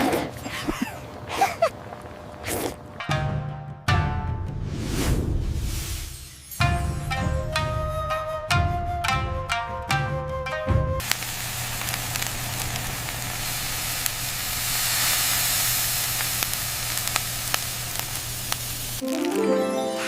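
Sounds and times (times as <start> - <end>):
food sizzling: 11.0 - 20.0
plucked-string music: 19.0 - 20.0.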